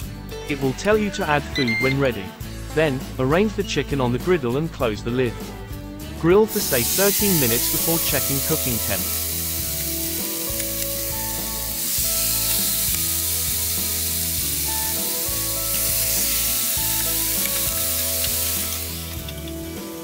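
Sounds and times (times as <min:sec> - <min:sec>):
light background music: 0:00.0 - 0:20.0
chicken sizzling on a griddle: 0:06.5 - 0:20.0.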